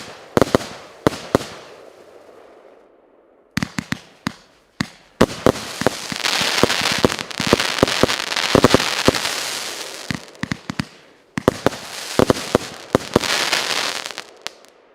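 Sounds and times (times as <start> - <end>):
crackling firework hiss: 5.2 - 14.7.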